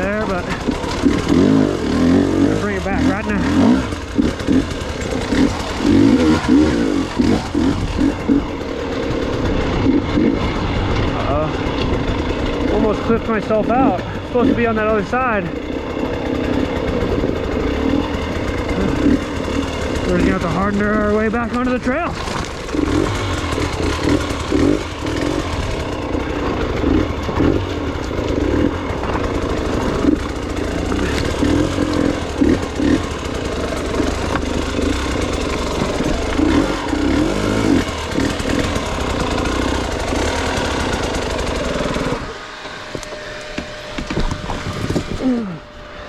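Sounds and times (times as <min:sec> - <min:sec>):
dirt bike engine revving: 0:00.0 - 0:46.0.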